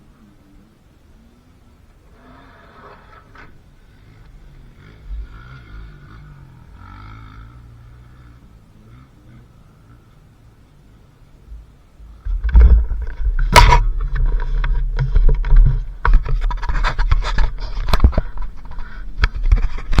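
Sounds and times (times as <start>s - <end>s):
dirt bike engine rumble: 0.0s - 20.0s
knocks and rattles: 12.2s - 20.0s.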